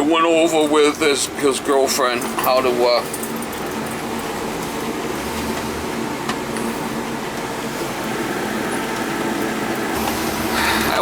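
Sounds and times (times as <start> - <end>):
road and engine noise in cabin: 0.0 - 11.0.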